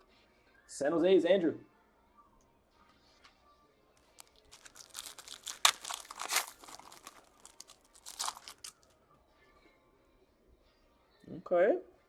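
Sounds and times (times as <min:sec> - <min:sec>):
wrapper being torn and crinkled: 0:04.0 - 0:08.9.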